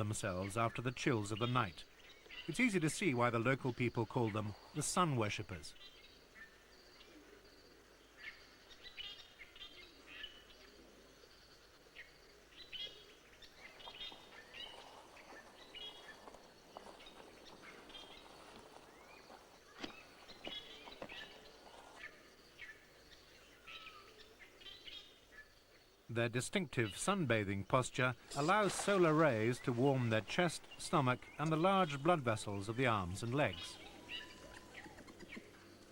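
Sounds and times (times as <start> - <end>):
birds chirping: 0.0 - 35.9.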